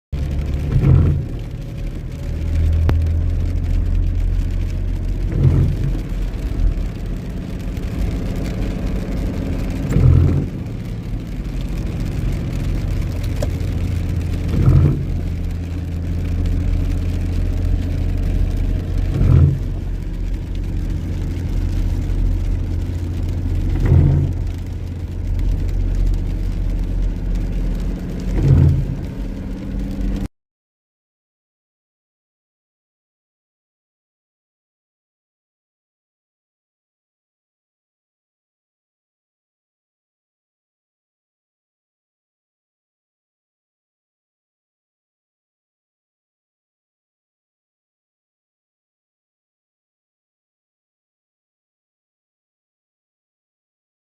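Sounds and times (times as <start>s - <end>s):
car engine and road hum: 0.2s - 30.3s
windscreen wipers sweeping: 0.2s - 30.3s.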